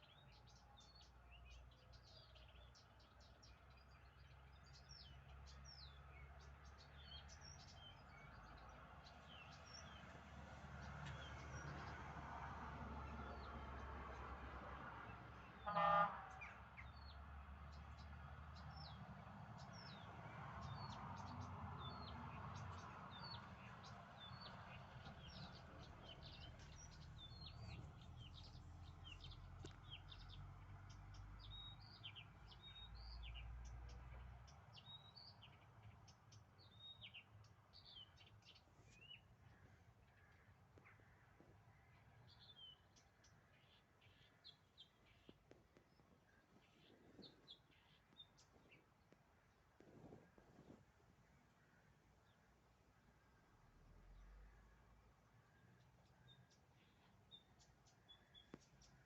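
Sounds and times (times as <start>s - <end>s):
small birds chirping: 0.0s - 12.0s, 15.4s - 53.4s, 54.0s - 59.0s
loud honk-like bird call: 15.6s - 16.6s.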